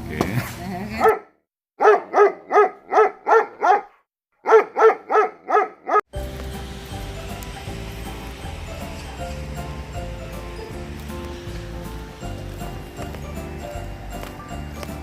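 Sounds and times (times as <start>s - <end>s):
dog barking: 1.0s - 6.0s.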